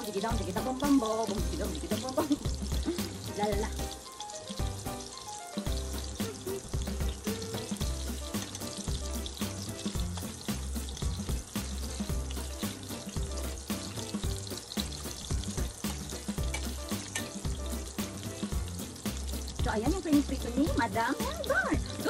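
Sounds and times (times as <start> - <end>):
shrimp frying in hot oil: 0.0 - 22.0
music with heavy bass: 5.7 - 22.0.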